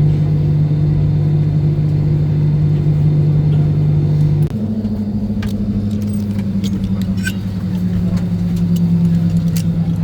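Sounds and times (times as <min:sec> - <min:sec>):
airplane cabin drone: 0:00.0 - 0:10.0.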